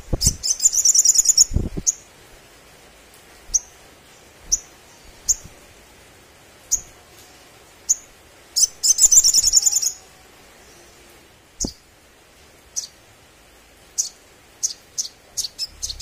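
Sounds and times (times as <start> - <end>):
bird trill: 0.2 - 1.5, 8.6 - 10.0, 14.0 - 16.0.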